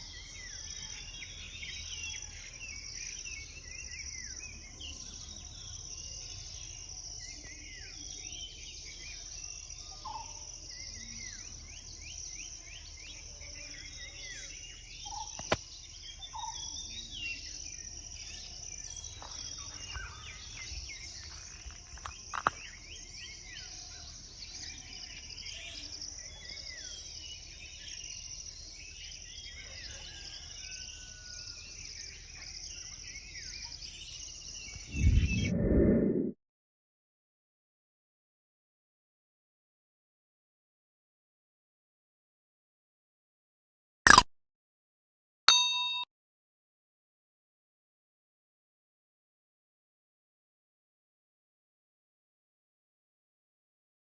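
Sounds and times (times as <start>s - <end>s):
small birds chirping: 0.0s - 30.3s
high drone of insects: 0.0s - 35.5s
sharp clicks: 44.1s - 44.3s.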